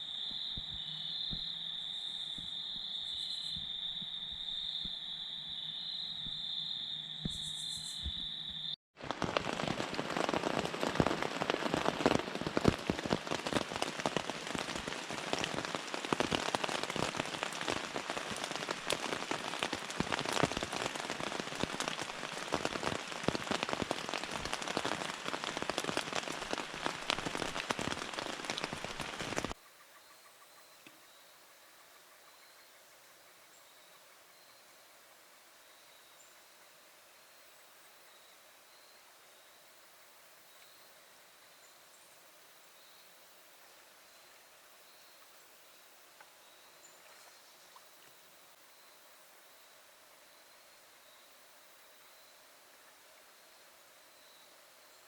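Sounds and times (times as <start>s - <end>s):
crickets chirping: 0.0s - 8.8s, 13.6s - 55.0s
heavy rain: 9.0s - 29.6s.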